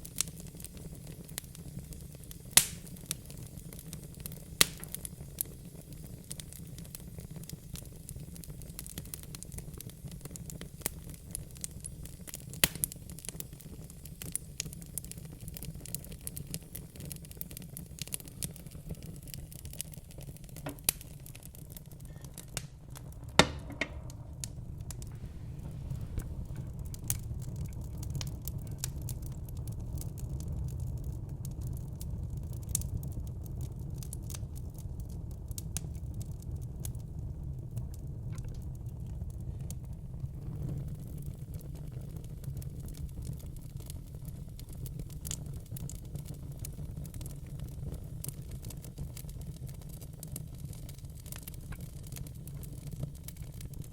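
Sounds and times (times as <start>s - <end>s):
low fire rumble: 0.0s - 53.9s
wood fire crackling and popping: 0.0s - 53.9s.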